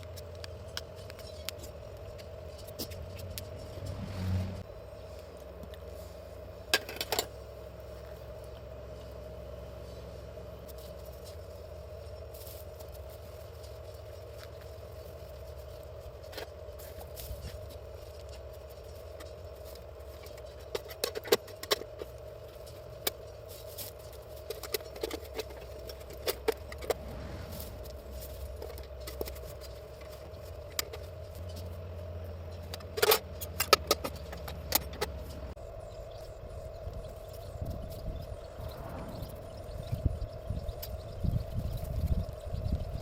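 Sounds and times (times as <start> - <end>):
low hum: 0.0 - 12.6, 26.2 - 31.4, 34.2 - 43.0.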